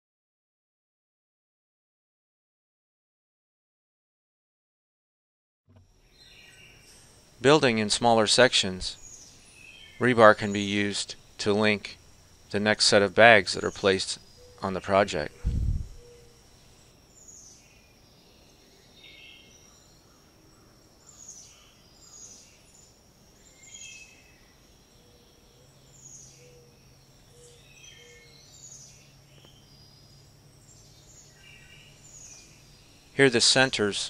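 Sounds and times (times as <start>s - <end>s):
bird chirps: 6.0s - 7.2s, 8.9s - 12.6s, 13.2s - 34.0s.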